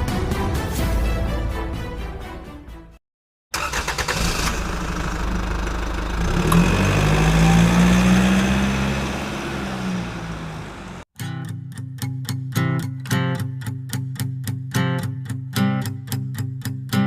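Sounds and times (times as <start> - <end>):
music: 0.0 - 3.0, 11.2 - 17.0
car engine running: 3.6 - 11.0
road and wind noise: 5.4 - 11.0.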